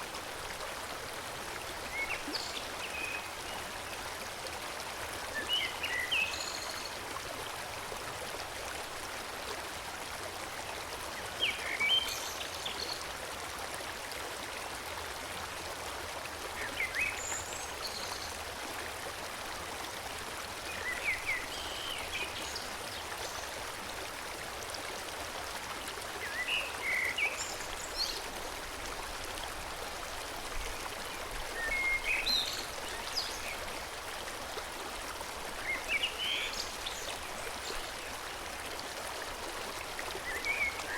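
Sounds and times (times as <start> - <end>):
stream flowing: 0.0 - 40.9.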